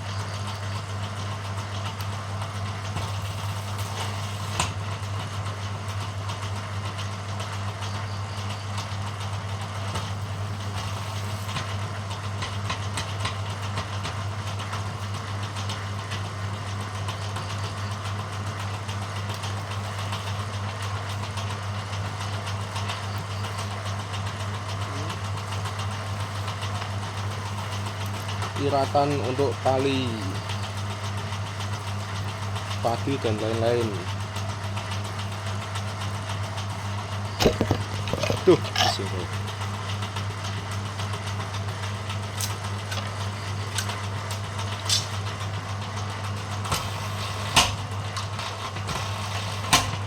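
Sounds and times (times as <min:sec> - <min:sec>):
machine humming: 0:22.8 - 0:45.4.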